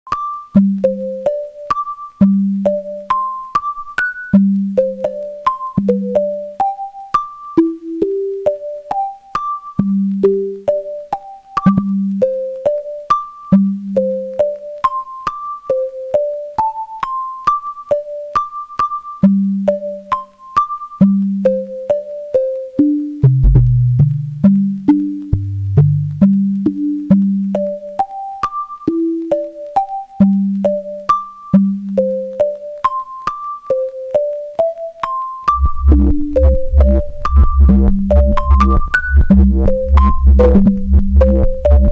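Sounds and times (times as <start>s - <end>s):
low synth bass notes: 23.2s - 24.6s, 25.3s - 26.3s, 35.5s - 41.9s
synthesizer sequenced melody: 35.5s - 41.9s.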